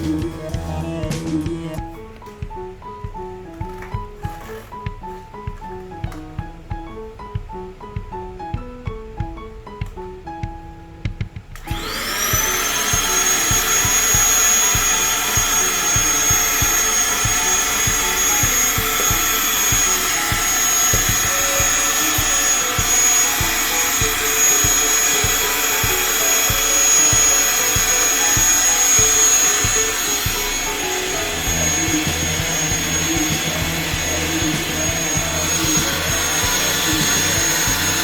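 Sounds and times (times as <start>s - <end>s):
electric air pump whining: 3.1s - 6.3s, 11.5s - 38.0s.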